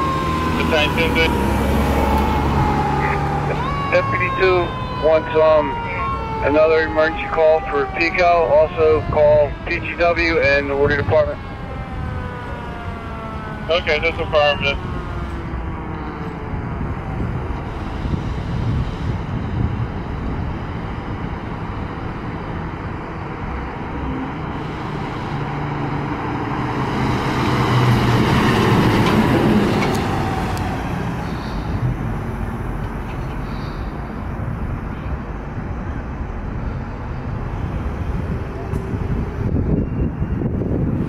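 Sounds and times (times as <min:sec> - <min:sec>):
heavy vehicle passing: 0:00.0 - 0:41.0
road traffic: 0:00.0 - 0:41.0.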